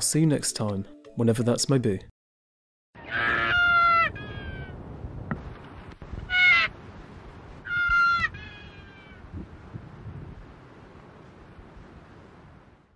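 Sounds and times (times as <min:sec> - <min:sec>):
bird calling: 0:03.0 - 0:04.8, 0:06.2 - 0:06.7, 0:07.6 - 0:09.2.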